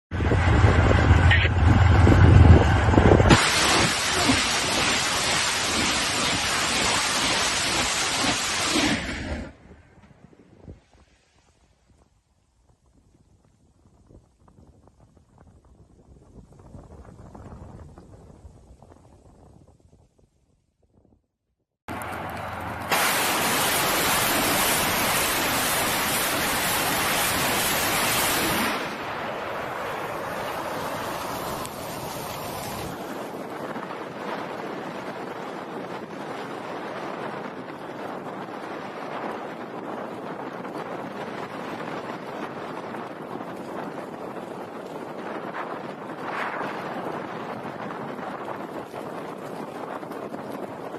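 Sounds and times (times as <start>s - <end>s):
heavy vehicle engine rumbling: 0.1s - 5.5s
loud rushing noise: 0.1s - 9.6s, 22.7s - 33.0s
rocket launcher roar: 0.2s - 9.7s, 22.9s - 33.0s.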